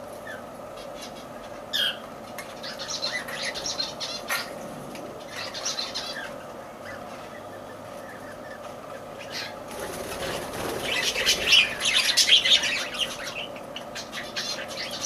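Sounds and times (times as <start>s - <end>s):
lovebirds chirping: 0.0s - 15.0s
steady background hum: 0.0s - 15.0s.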